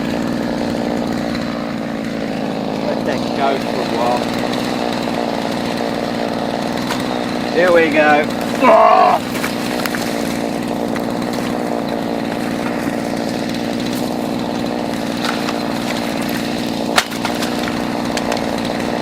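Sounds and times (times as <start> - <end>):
chainsaw running: 0.0 - 19.0
sharp crack: 6.7 - 14.2, 14.8 - 19.0.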